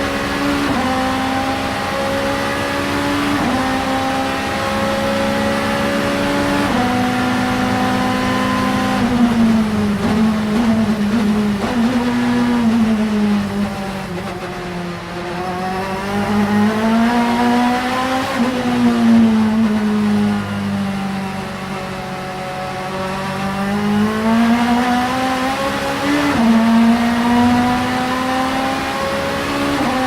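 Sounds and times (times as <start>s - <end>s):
race car engine revving: 0.0s - 30.0s
gear upshifts: 0.1s - 20.6s.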